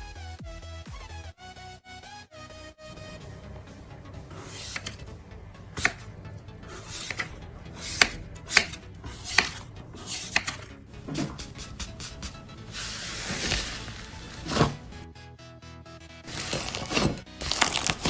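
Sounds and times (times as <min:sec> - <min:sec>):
sharp cutting or crunching strikes: 0:05.7 - 0:06.1, 0:06.8 - 0:14.8.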